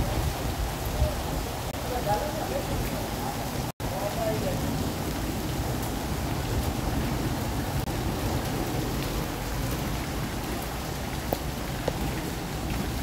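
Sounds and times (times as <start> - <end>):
heavy rain on stone paving: 0.0 - 13.0.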